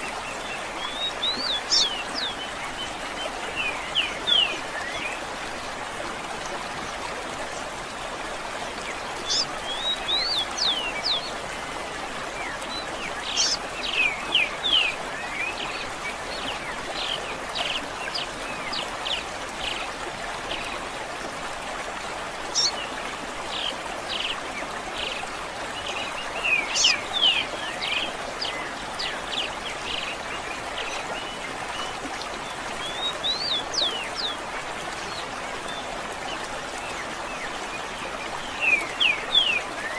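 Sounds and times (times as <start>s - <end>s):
stream rushing: 0.0s - 39.9s
songbirds chirping and whistling: 9.2s - 11.3s, 12.4s - 15.7s.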